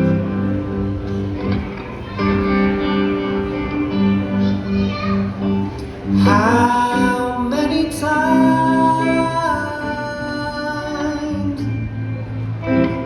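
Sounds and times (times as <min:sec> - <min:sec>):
acoustic guitar: 0:00.0 - 0:13.0.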